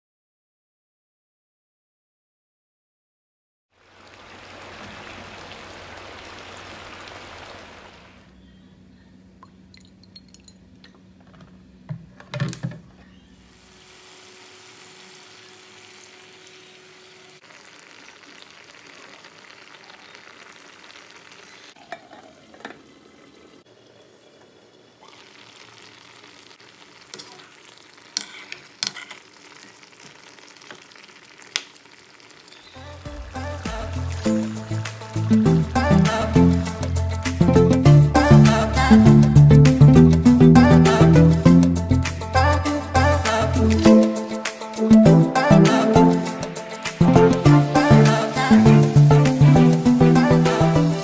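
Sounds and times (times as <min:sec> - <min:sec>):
chicken sizzling in a wok: 0:03.8 - 0:07.9, 0:13.5 - 0:35.2.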